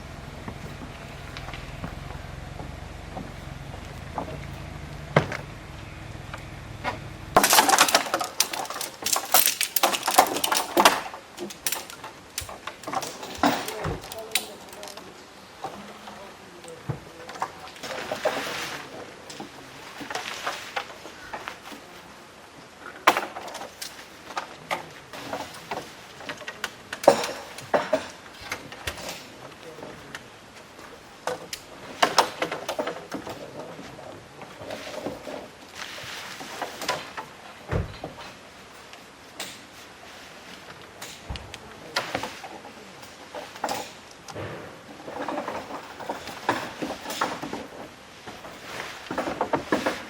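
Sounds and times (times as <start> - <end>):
steady low hum: 0.0 - 9.0
knocks and clatters of handling: 0.0 - 22.1, 22.8 - 50.0
hard objects clinking together: 6.9 - 15.0.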